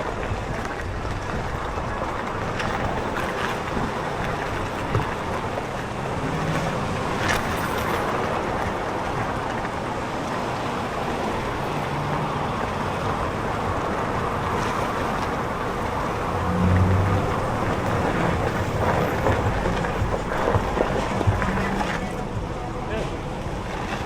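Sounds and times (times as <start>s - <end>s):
street traffic: 0.0s - 24.0s
wind rushing: 15.3s - 22.5s
low hum: 15.8s - 22.6s.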